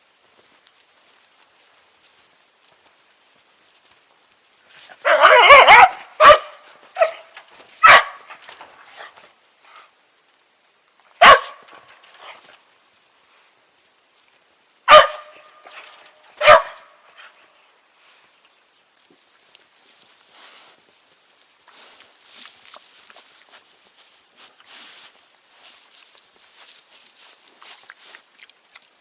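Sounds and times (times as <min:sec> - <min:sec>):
dog barking: 0:05.0 - 0:08.3, 0:11.2 - 0:11.7, 0:14.9 - 0:15.5, 0:16.4 - 0:16.9.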